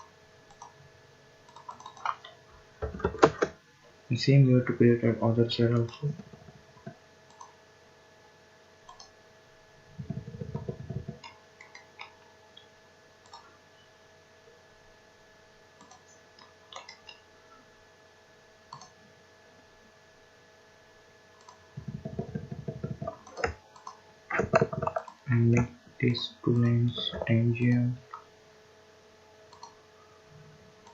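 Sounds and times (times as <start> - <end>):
faint steady hum: 0.0 - 30.9
computer mouse clicking: 0.5 - 0.8, 1.5 - 3.6, 5.8 - 7.6, 8.8 - 9.2, 10.0 - 13.5, 15.8 - 17.2, 18.7 - 19.0, 21.4 - 25.7, 29.5 - 29.8.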